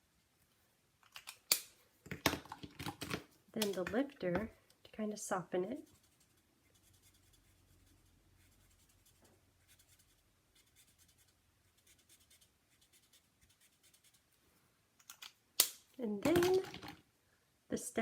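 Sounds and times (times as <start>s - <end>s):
marker tip scratching on card: 5.8s - 14.2s.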